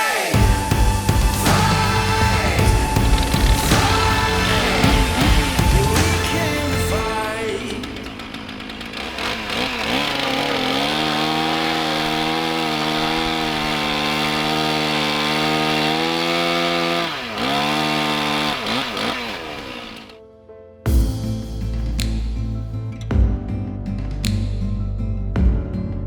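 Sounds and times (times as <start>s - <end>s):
chainsaw revving: 0.4s - 20.2s.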